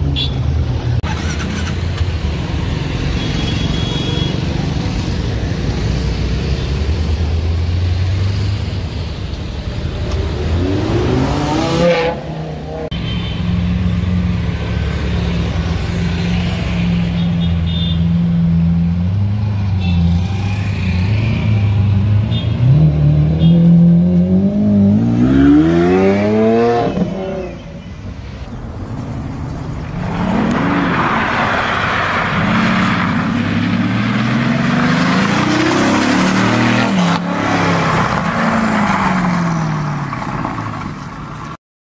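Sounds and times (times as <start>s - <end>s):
car engine revving: 1.0s - 2.0s, 10.0s - 12.9s, 29.7s - 40.4s.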